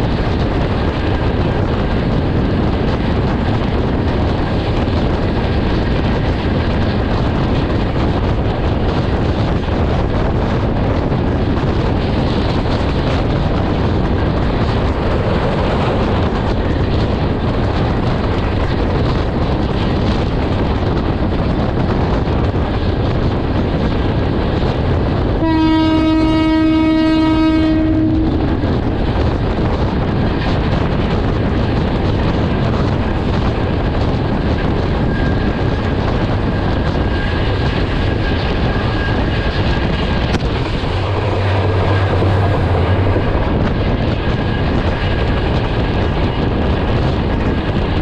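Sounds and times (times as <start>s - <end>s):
train wheel and wind noise: 0.0s - 48.0s
train horn blast: 25.4s - 28.8s, 40.8s - 43.4s.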